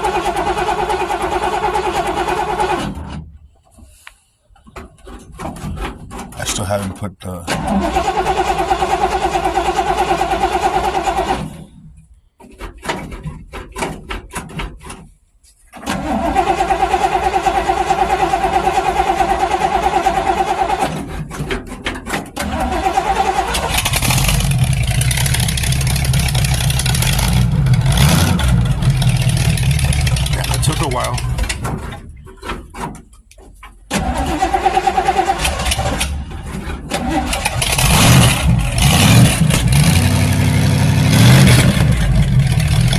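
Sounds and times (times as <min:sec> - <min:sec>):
starter motor cranking: 0:00.0 - 0:03.3, 0:07.5 - 0:11.8, 0:15.8 - 0:42.9
car engine running: 0:23.4 - 0:32.6, 0:35.4 - 0:42.9.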